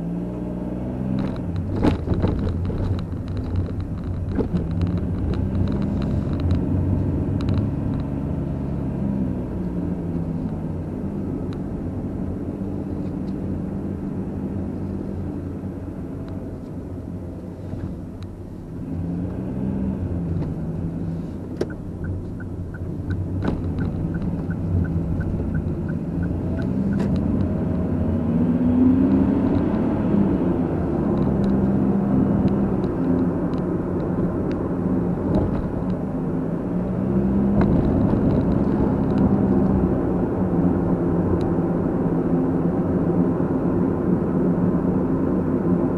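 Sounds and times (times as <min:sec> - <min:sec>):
car engine: 0:00.0 - 0:45.9
road rumble: 0:00.0 - 0:45.9
regular ticking: 0:21.6 - 0:26.7.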